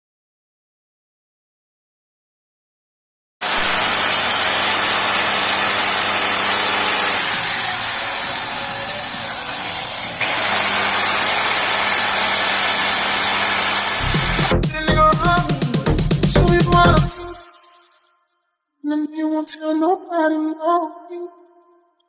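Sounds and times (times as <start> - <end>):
music with heavy bass: 14.0 - 17.4.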